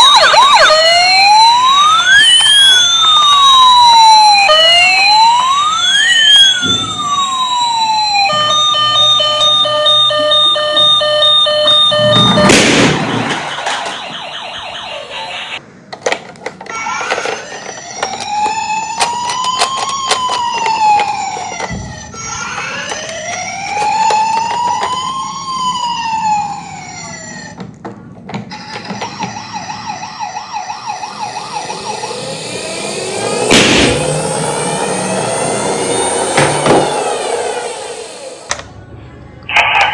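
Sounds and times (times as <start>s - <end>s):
emergency vehicle sirens: 0.0s - 15.6s, 16.6s - 38.8s.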